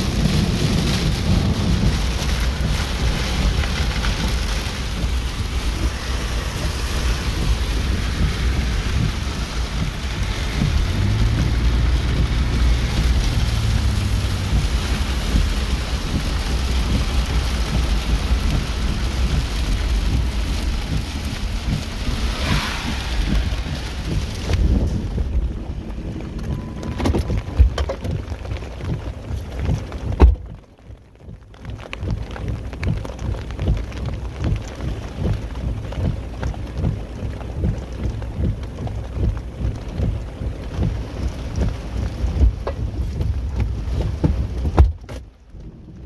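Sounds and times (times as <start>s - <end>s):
heavy rain on a car roof: 0.0s - 46.0s
low rumble: 0.0s - 46.0s.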